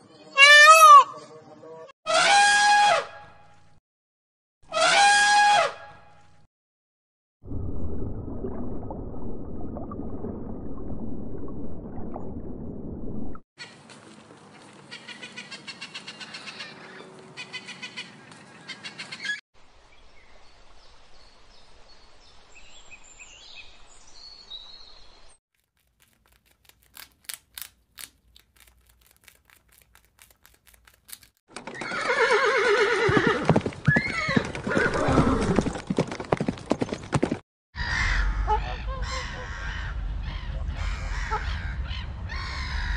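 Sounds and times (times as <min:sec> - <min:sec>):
horse neighing: 0:31.8 - 0:35.7.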